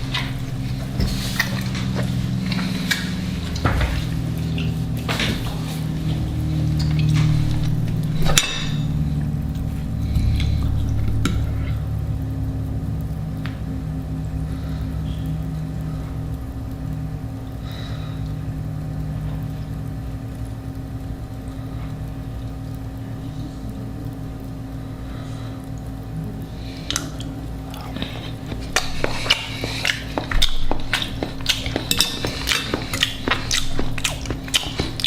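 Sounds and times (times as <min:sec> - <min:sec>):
steady low hum: 0:00.0 - 0:35.0
cutlery clinking on a plate: 0:08.2 - 0:08.9.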